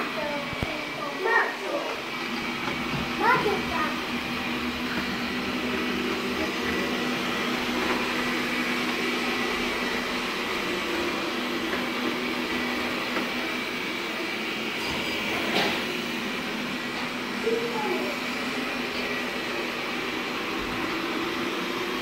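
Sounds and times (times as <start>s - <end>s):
vacuum cleaner running: 0.0s - 22.0s
vacuum cleaner click: 0.4s - 0.9s, 14.7s - 16.1s.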